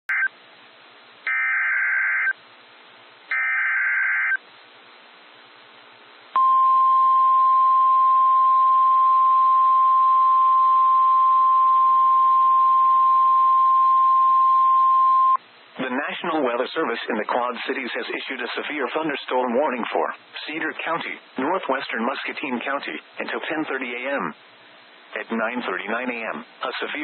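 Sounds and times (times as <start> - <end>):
faint radio hiss: 4.2 - 11.3, 15.4 - 27.0.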